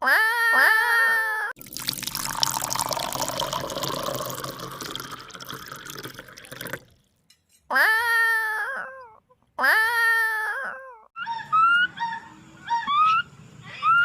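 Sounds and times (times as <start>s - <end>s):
water splashing and pouring: 1.6s - 7.1s.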